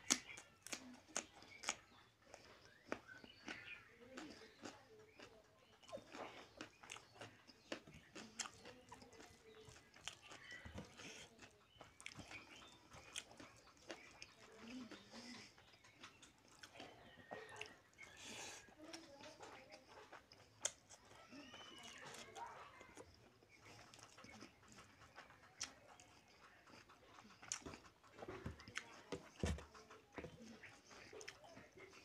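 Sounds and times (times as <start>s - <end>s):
wet chewing smacks: 0.0s - 32.0s
fingers mixing rice on plate: 21.8s - 32.0s.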